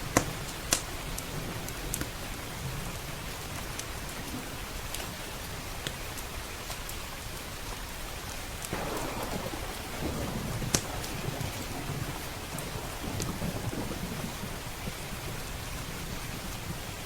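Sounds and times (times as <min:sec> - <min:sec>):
steady rain: 0:00.0 - 0:17.0
wood fire crackling pops: 0:08.6 - 0:16.7
roll of thunder: 0:08.7 - 0:17.0.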